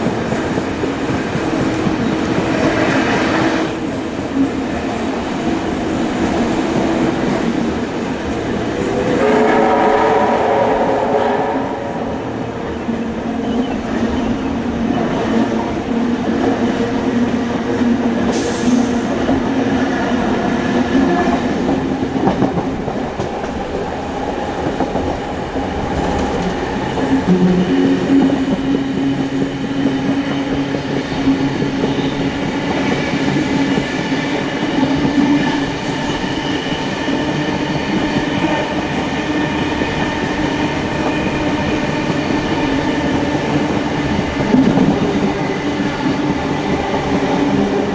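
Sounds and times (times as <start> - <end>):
clickety-clack of train wheels: 0.0 - 47.9
train wheels rumbling on rails: 0.0 - 47.9.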